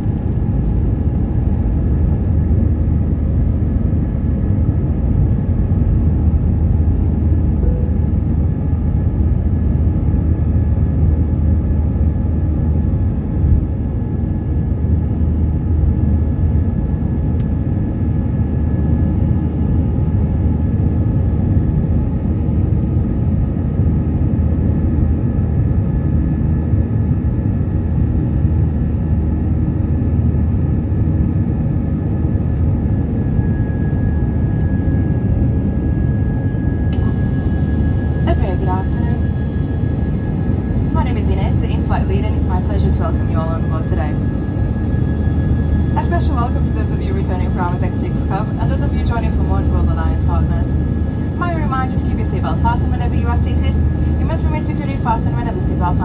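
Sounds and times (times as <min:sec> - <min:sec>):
aircraft cabin engine rumble: 0:00.0 - 0:56.0
faint high tone: 0:07.6 - 0:08.3.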